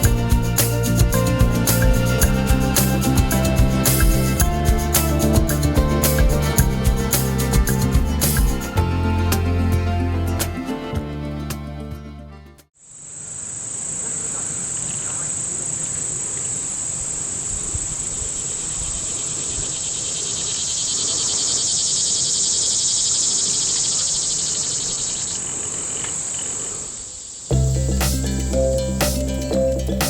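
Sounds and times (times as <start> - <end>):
crickets trilling: 12.8 - 30.0.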